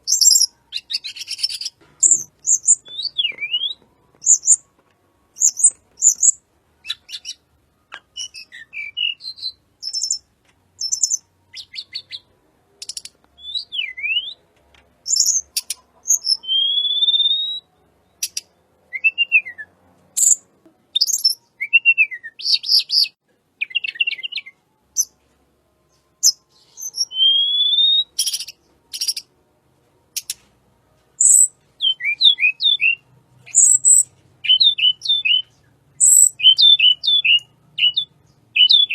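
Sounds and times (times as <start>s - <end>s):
songbird singing whistles and trills: 0.0s - 4.7s, 5.3s - 25.2s, 25.9s - 29.3s, 30.2s - 30.5s, 31.2s - 38.9s.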